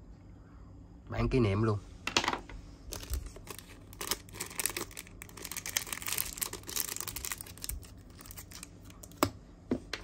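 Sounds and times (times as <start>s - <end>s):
rustling and crinkling handling: 2.9s - 9.9s.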